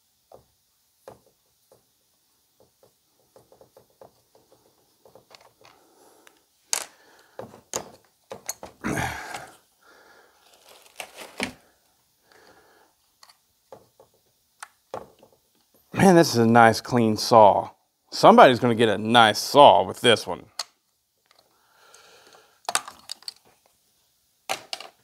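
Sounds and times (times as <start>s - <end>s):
plastic parts clicking and knocking: 0.3s - 9.5s, 13.2s - 15.7s, 20.5s - 21.5s, 22.6s - 23.7s, 24.5s - 25.0s
rustling scrape: 10.4s - 11.8s.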